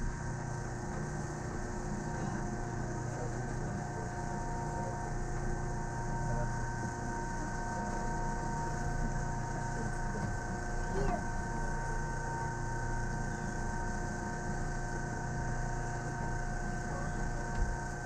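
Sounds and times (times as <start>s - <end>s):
electrical whining tones: 0.0s - 18.0s
train low rumble: 0.0s - 18.0s.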